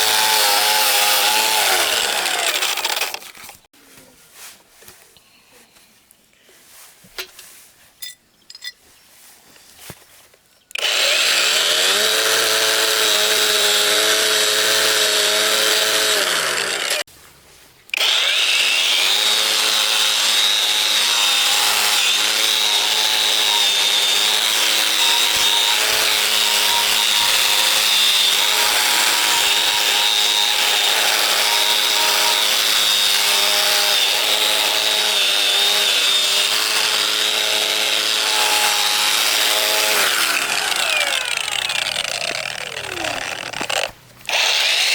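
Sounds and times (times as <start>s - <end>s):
power tool grinding whine: 0.0s - 3.6s, 10.8s - 17.1s, 17.9s - 44.9s.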